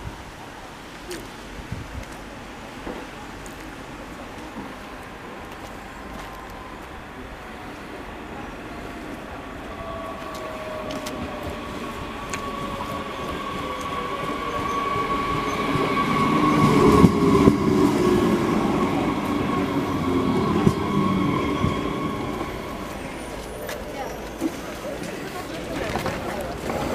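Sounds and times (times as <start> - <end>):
train approaching: 0.0 - 26.9.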